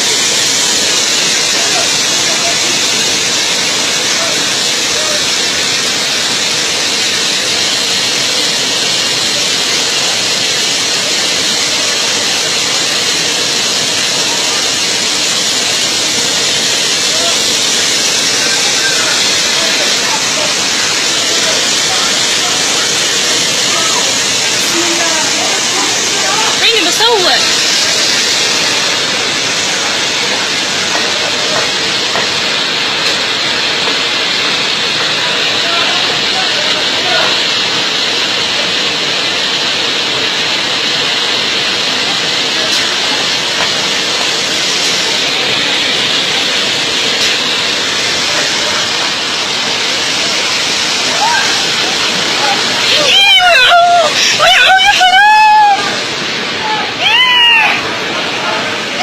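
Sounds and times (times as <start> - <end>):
water rushing hiss: 0.0 - 59.0.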